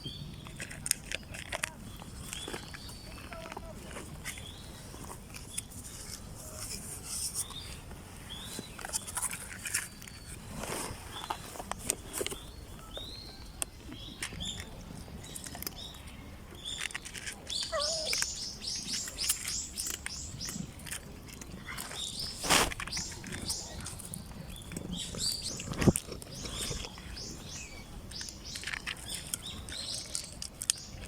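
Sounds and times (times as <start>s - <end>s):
birds chirping and calling: 9.9s - 31.0s.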